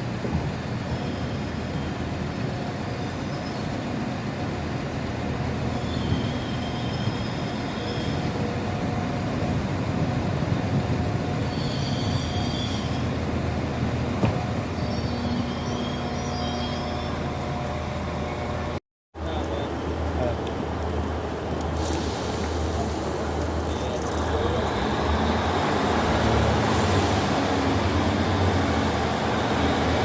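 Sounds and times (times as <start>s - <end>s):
train rumbling: 0.0s - 30.0s
high-pitched squeals: 11.4s - 13.3s, 14.6s - 18.7s.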